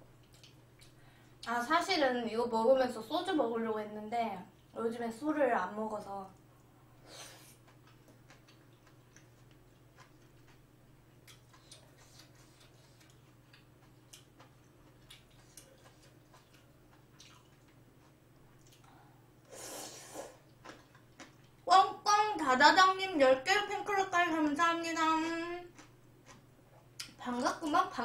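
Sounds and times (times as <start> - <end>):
quiet chewing: 0.2 - 1.5, 6.3 - 21.7, 25.7 - 27.6.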